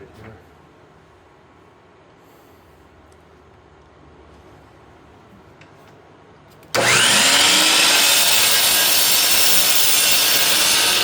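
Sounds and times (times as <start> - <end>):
miter saw motor whining: 6.8 - 11.0.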